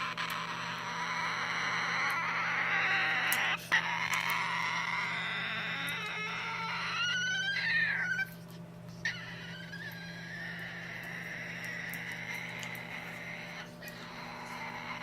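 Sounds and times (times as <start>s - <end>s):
animal calling: 0.0s - 15.0s.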